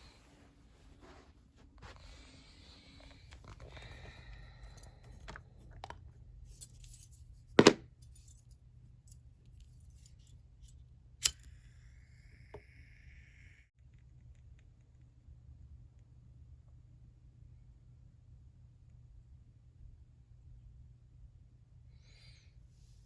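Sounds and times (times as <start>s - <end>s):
hard objects clicking and clinking: 5.1s - 8.4s.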